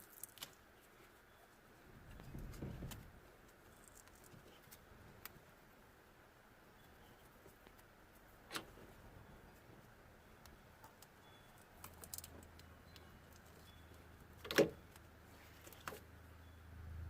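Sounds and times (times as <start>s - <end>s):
small clicks and rustles: 2.0s - 5.4s, 9.7s - 16.1s.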